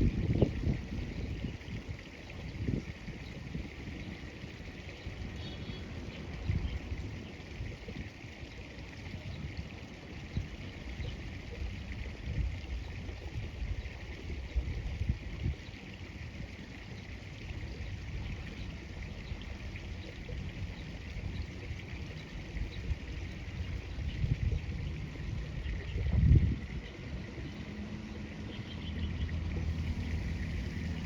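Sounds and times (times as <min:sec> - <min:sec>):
wind on microphone: 0:00.0 - 0:08.1, 0:17.7 - 0:27.9
river water flowing: 0:00.0 - 0:31.0.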